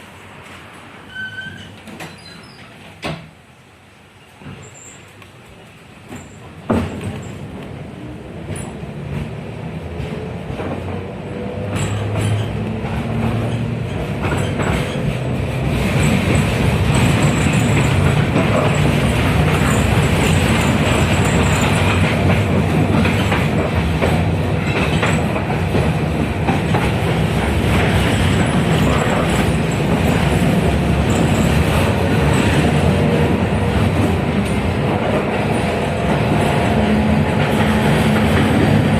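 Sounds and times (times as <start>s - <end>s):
tram motors and wheels running: 1.7s - 38.9s
wheels clacking over rail joints: 8.4s - 38.9s.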